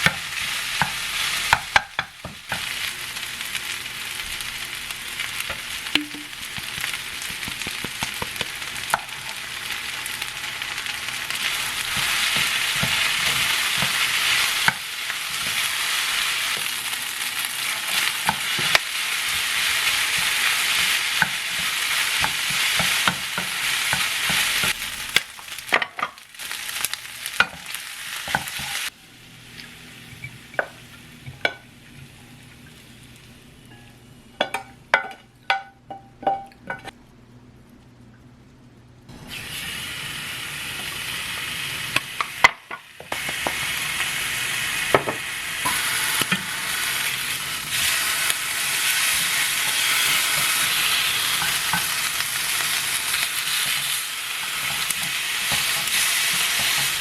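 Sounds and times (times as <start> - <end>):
food sizzling in a frying pan: 0.0 - 36.4, 39.1 - 57.0
utensil clacking against a pan: 5.5 - 9.4, 20.1 - 26.2, 34.4 - 36.9, 53.5 - 57.0.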